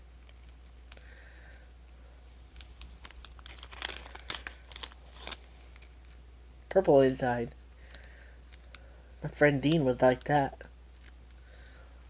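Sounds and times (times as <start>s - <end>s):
snack wrapper crinkling: 0.3s - 1.1s, 2.6s - 6.2s, 7.7s - 8.8s, 9.7s - 11.3s
sharp wrapper snaps: 2.6s - 5.9s.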